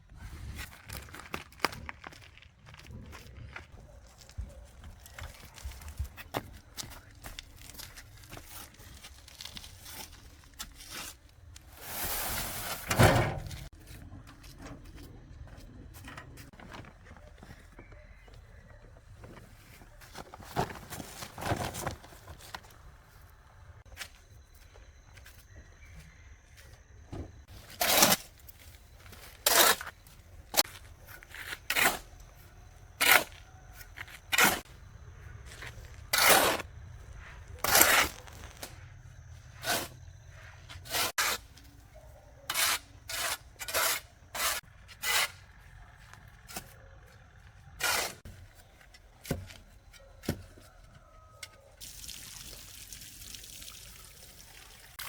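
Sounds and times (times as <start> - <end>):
trickling hiss of running water: 51.8 - 55.0.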